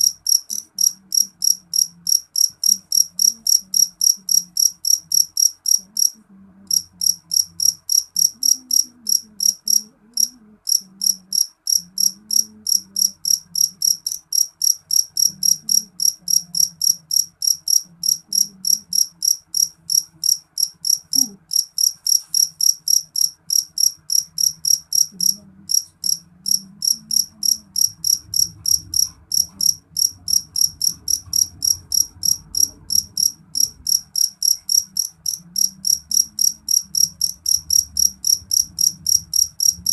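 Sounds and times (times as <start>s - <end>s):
cricket chirping shrilly: 0.0s - 39.9s.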